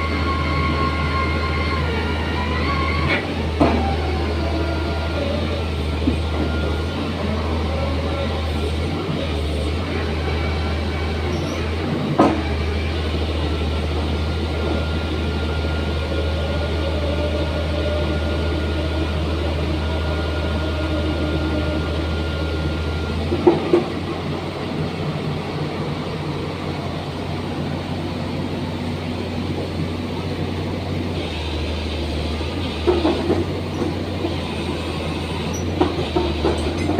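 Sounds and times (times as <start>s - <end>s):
excavator drilling into ground: 31.1s - 36.9s.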